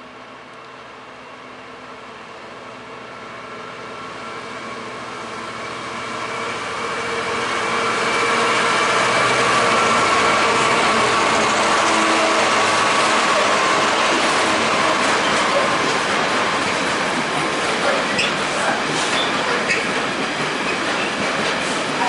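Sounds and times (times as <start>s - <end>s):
train rumbling past: 0.2s - 22.0s.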